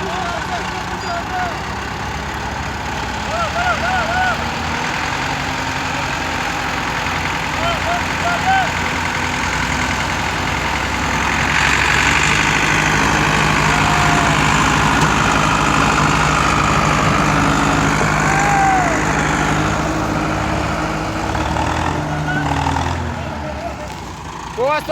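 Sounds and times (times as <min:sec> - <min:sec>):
tractor engine running hard: 0:00.0 - 0:24.9.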